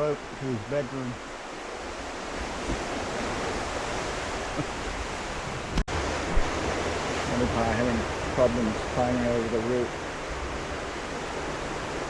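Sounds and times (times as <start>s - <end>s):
steady rushing noise: 4.9s - 12.0s.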